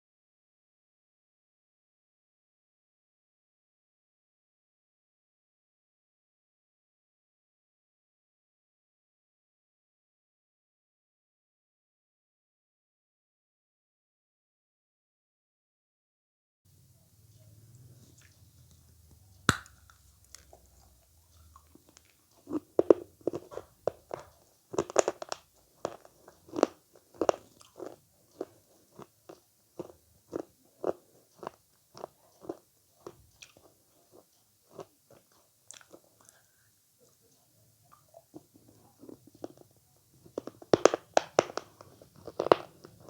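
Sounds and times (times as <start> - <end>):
biting into avocado: 19.5 - 36.4, 38.4 - 43.0
person chewing: 19.5 - 43.0.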